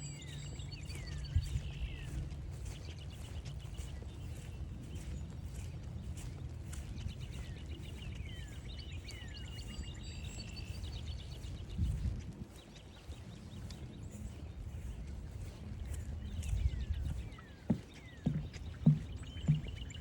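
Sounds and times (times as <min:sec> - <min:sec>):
songbird trilled song: 0:00.0 - 0:20.0
wind rumbling on microphone: 0:00.0 - 0:20.0.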